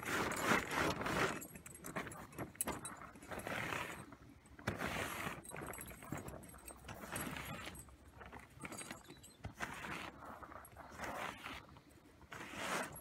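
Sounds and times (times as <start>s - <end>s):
metallic clinking and rattling: 5.3s - 9.4s.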